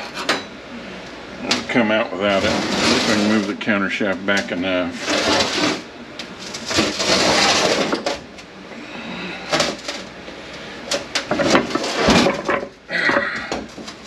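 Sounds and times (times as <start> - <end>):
metal parts scraping: 1.5 - 3.6, 5.0 - 8.2, 10.9 - 12.7.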